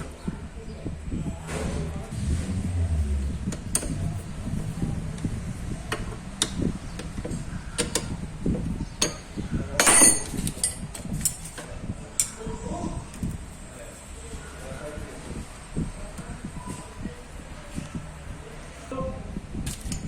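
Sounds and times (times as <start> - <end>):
metal tools clattering: 9.0 - 11.6.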